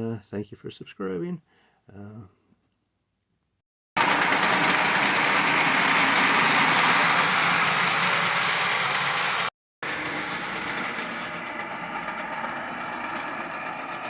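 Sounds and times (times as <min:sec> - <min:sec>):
model locomotive grinding whir: 0:04.0 - 0:14.0.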